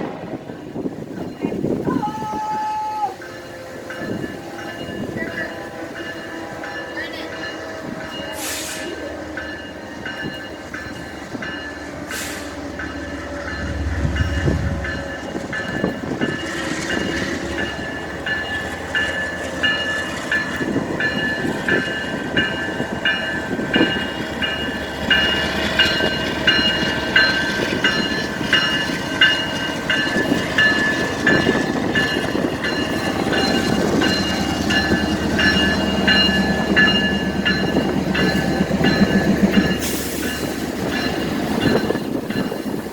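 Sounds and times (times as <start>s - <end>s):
high ringing of wheels on rails: 0.0s - 42.9s.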